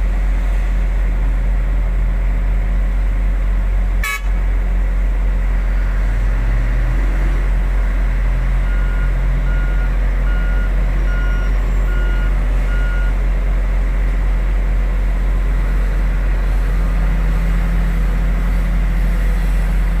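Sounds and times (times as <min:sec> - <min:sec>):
diesel machinery rumbling: 0:00.0 - 0:20.0
reversing alarm beeping: 0:08.6 - 0:13.2.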